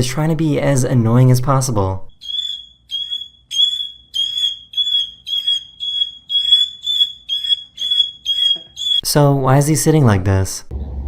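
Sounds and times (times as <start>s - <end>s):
bird beeping call: 2.2s - 9.2s.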